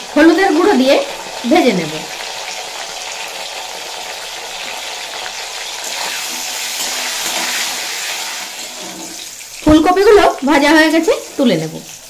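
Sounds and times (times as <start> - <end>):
vegetables sizzling in hot oil: 0.0 - 12.0
spatula stirring: 5.6 - 9.4.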